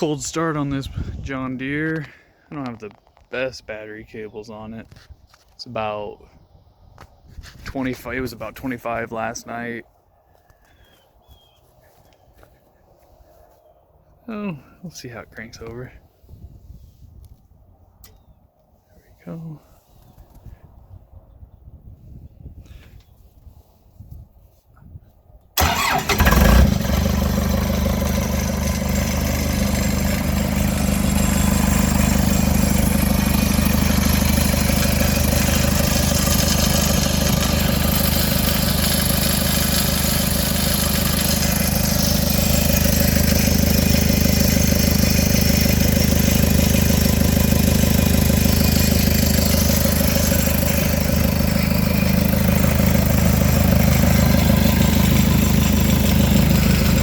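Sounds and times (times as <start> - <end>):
diesel engine starting and idling: 25.6 - 57.0.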